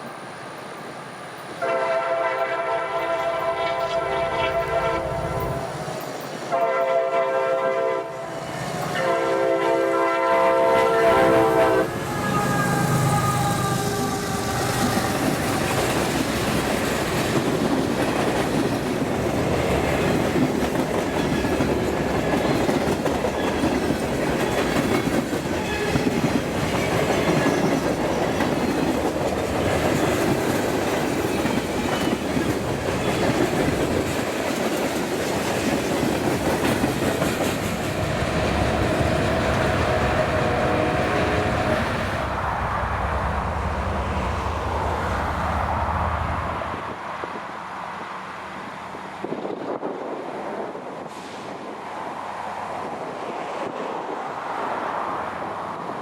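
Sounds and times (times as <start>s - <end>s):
train rumbling past: 0.0s - 56.0s
locomotive air horn blasts: 1.6s - 5.7s, 6.5s - 15.5s, 38.0s - 42.3s.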